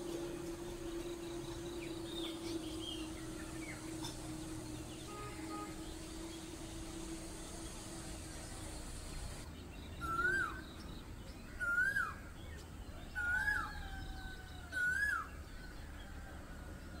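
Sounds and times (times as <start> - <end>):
bird calling: 10.0 - 10.6, 11.6 - 12.2.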